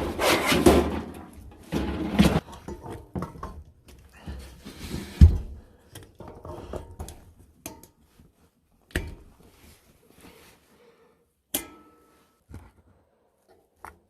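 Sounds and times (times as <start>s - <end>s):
objects knocking and clicking: 0.8s - 4.1s.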